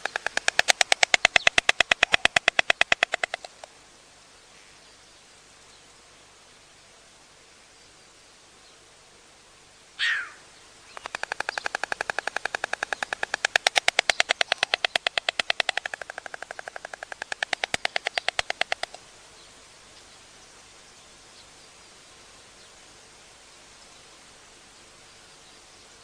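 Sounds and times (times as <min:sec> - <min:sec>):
stork bill-clattering: 0:00.0 - 0:03.7, 0:11.0 - 0:19.0.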